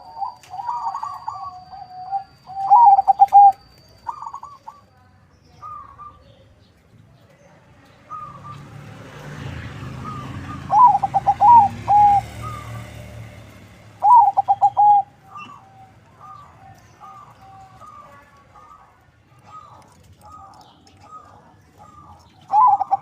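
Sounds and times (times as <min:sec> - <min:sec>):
dove cooing: 0:00.0 - 0:04.9, 0:09.8 - 0:13.1, 0:14.0 - 0:23.0
faint coos of other doves: 0:00.0 - 0:06.4, 0:09.9 - 0:13.0, 0:14.0 - 0:23.0.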